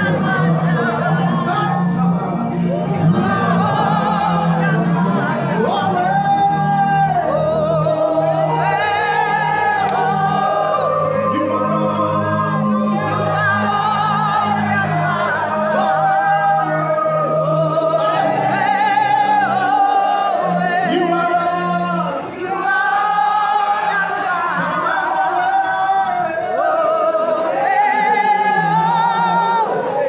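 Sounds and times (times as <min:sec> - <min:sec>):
sustained low accompaniment: 0:00.0 - 0:22.4
person singing with vibrato: 0:00.0 - 0:30.0.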